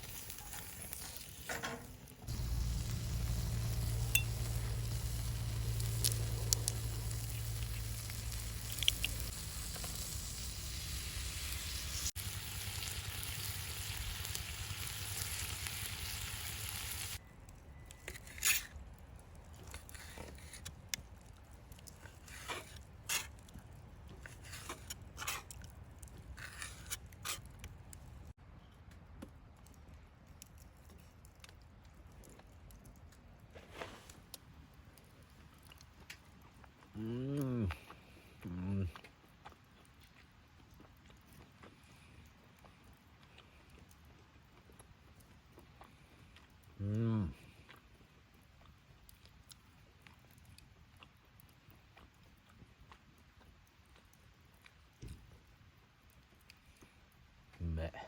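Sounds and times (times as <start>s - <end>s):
food sizzling in a pan: 0.0s - 17.2s
faint crackles and pops: 0.0s - 58.0s.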